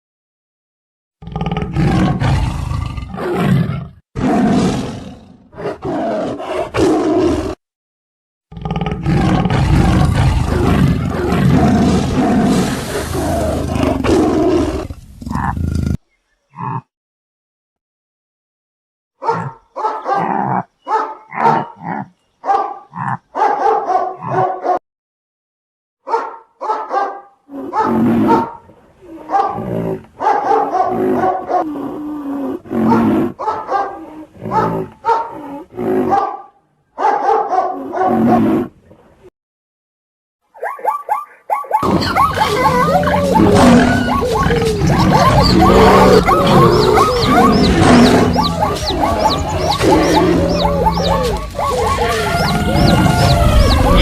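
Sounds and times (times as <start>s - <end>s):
wild animal roaring: 1.2s - 7.6s, 8.5s - 16.9s, 30.9s - 33.4s, 41.8s - 54.0s
dog barking: 19.2s - 21.8s, 22.4s - 24.8s, 26.0s - 28.6s, 29.2s - 31.7s, 32.8s - 35.4s, 36.0s - 38.4s, 40.6s - 53.3s.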